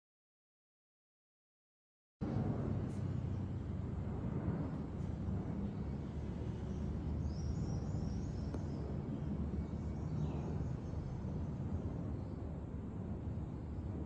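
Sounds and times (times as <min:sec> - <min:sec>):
low outdoor rumble: 0:02.2 - 0:14.0.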